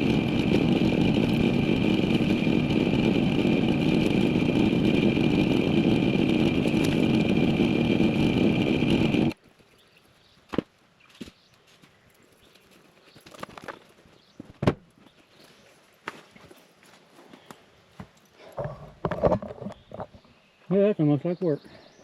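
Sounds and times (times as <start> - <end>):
chainsaw running: 0.0 - 9.4.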